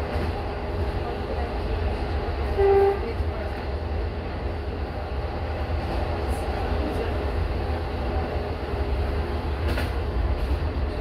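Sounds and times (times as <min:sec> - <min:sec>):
diesel train engine drone: 0:00.0 - 0:11.0.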